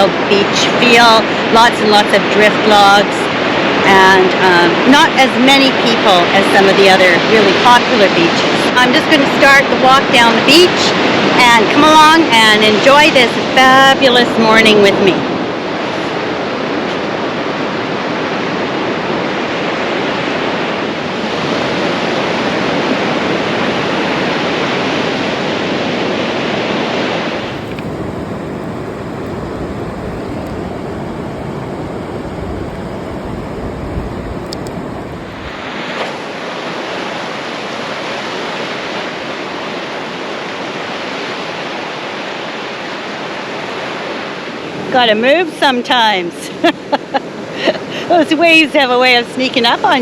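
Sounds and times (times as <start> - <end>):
wind rumble on microphone: 0.0 - 35.8
ocean surf breaking: 26.9 - 36.5.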